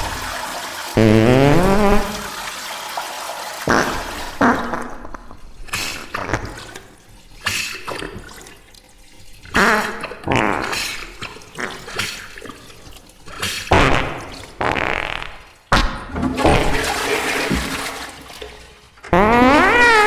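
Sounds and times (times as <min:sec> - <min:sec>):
slowed reverberant fart sounds: 0:01.0 - 0:02.4, 0:03.6 - 0:05.4, 0:13.7 - 0:16.1, 0:19.1 - 0:20.0.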